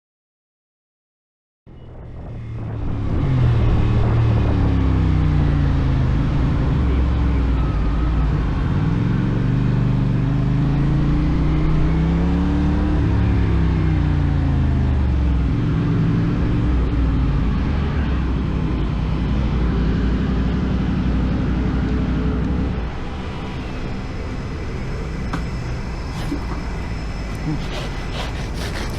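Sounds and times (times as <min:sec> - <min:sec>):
road and wind noise: 0:01.7 - 0:27.4
motorcycle engine revving: 0:01.9 - 0:06.9.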